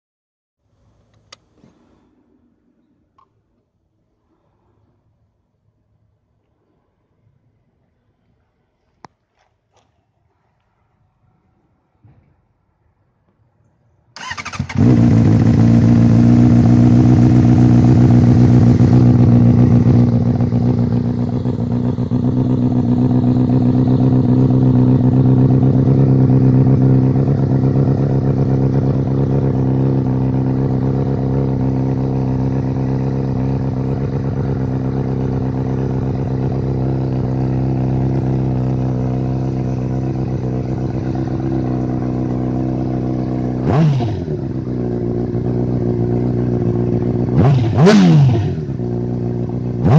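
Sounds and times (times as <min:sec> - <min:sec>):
motorcycle engine starting and idling: 0:14.1 - 0:49.9.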